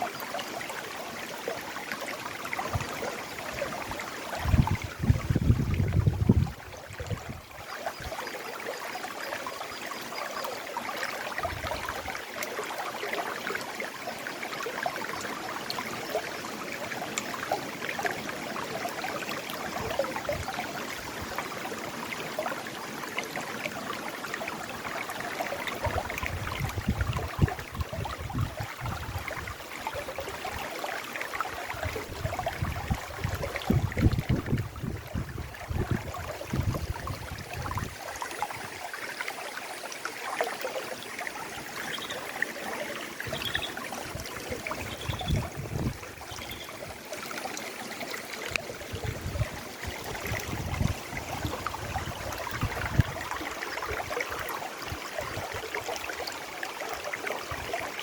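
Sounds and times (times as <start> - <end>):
river flowing over rocks: 35.6 - 58.0.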